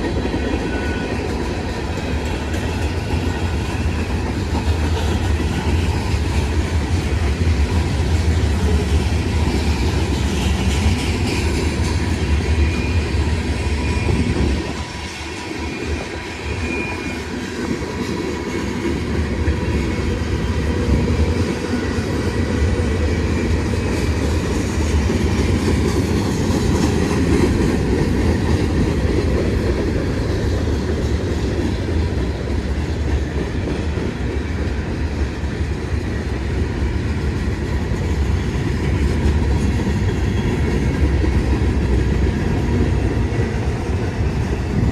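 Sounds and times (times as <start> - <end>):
freight train wheels clattering: 0.0 - 44.9.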